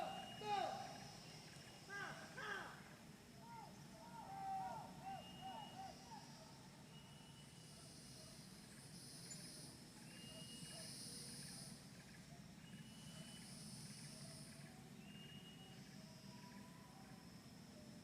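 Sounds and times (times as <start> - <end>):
thin high whistle: 0.0 - 1.6
faint low hum: 0.0 - 18.0
insects buzzing: 0.0 - 18.0.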